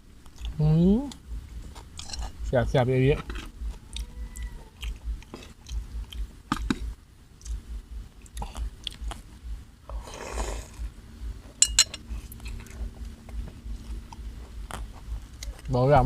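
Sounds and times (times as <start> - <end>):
person chewing food: 0.2 - 2.4, 3.2 - 9.4, 11.9 - 15.7.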